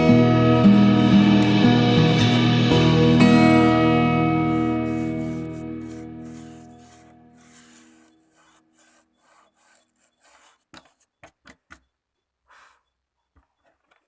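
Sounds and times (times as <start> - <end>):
guitar chord: 0.0 - 7.3
scraping and rubbing strokes: 0.0 - 11.5.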